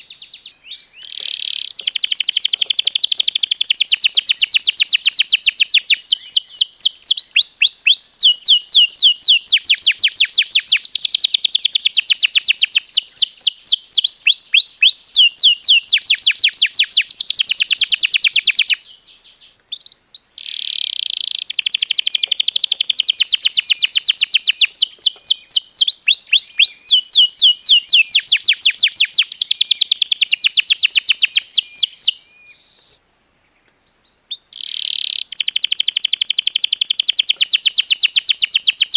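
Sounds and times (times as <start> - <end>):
canary singing trills and chirps: 0.0 - 32.9, 34.3 - 38.9.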